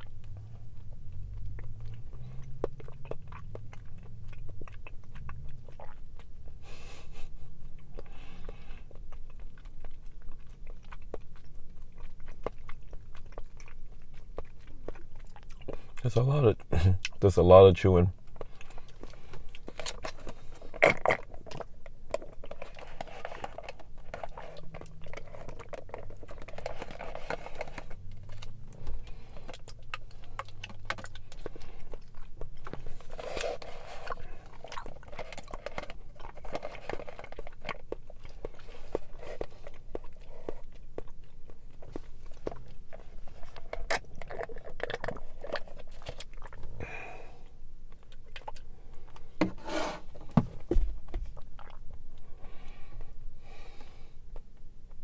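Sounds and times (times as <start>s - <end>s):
wet chewing clicks and smacks: 0.0s - 49.4s, 50.6s - 55.0s
sucking drink through a straw: 49.4s - 50.1s.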